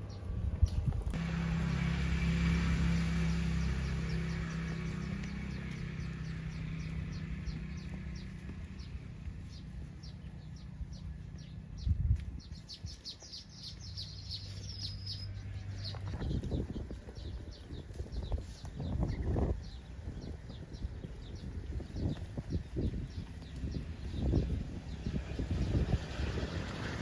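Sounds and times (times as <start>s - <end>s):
low hum: 0.0s - 12.6s
cattle hooves on road: 0.0s - 27.0s
bird chirping: 2.2s - 25.7s.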